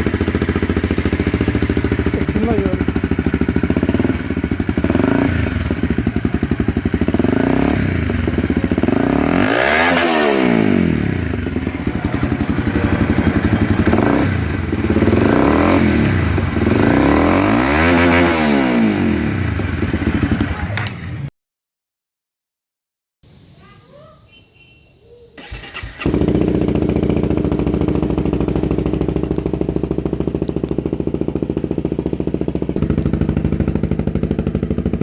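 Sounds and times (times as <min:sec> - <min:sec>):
motorcycle engine revving: 0:00.0 - 0:21.3, 0:25.4 - 0:35.0.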